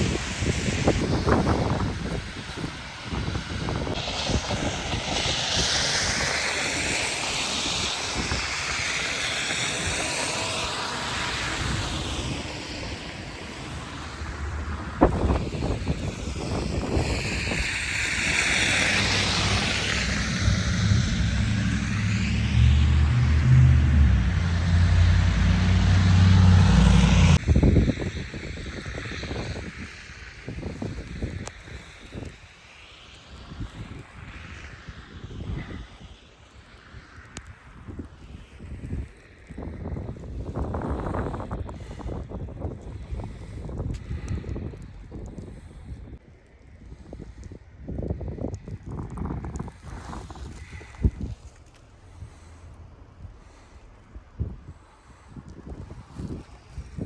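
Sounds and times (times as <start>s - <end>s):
wind buffeting microphone: 0.0s - 32.5s, 36.8s - 57.0s
blizzard wind gusting: 0.0s - 57.0s
vehicle engine humming: 10.0s - 27.4s.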